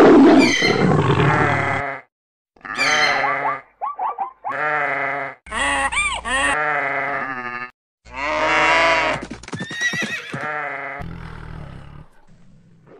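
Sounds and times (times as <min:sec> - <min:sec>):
farm animal calls: 0:02.6 - 0:11.1.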